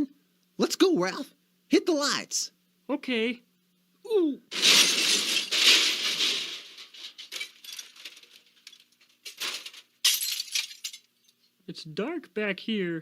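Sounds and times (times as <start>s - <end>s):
rustling and clattering: 4.5s - 11.1s.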